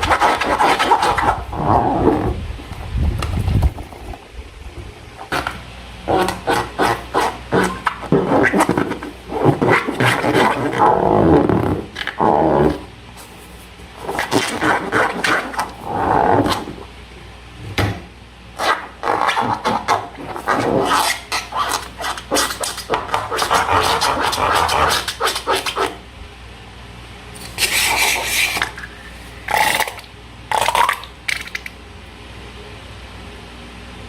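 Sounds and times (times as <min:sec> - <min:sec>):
slime scraping and squishing: 0:00.0 - 0:02.4, 0:05.2 - 0:16.8, 0:18.6 - 0:26.0, 0:27.4 - 0:30.0.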